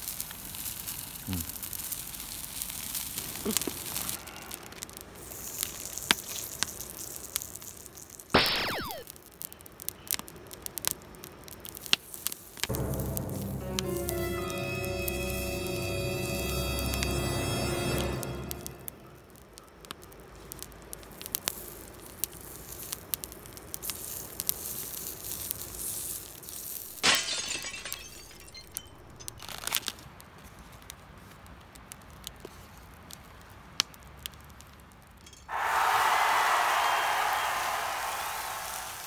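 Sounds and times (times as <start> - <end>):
fat sizzling on hot griddle: 0.0 - 13.0, 19.6 - 27.0
campfire wood crackling and popping: 0.0 - 13.4, 19.2 - 27.1, 28.5 - 35.4
loud hiss: 35.5 - 39.0.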